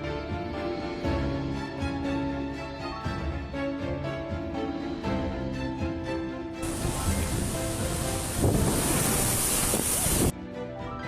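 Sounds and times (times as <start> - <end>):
strong wind on microphone: 6.6 - 10.3.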